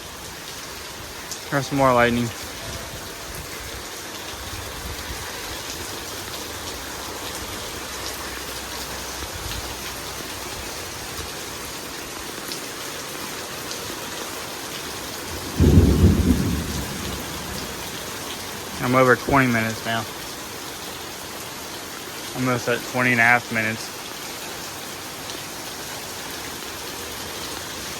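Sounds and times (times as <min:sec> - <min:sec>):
heavy rain falling: 0:00.0 - 0:27.9
thunder rumbling: 0:15.3 - 0:18.9
loud thunder clap: 0:15.4 - 0:18.0.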